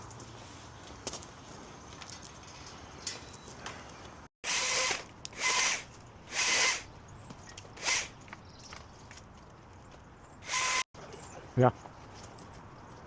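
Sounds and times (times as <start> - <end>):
hedge trimmer bursts: 4.4 - 6.9, 7.8 - 8.1, 10.4 - 10.9.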